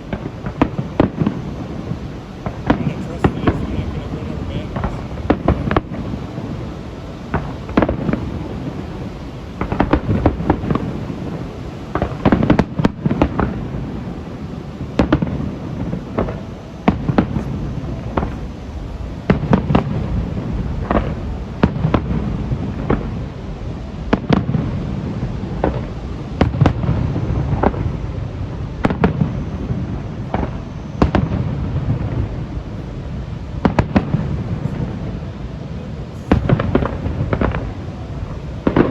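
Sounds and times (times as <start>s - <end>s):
echoing rumble of booms: 0.0s - 38.9s
fireworks bangs and crackles: 0.0s - 38.9s.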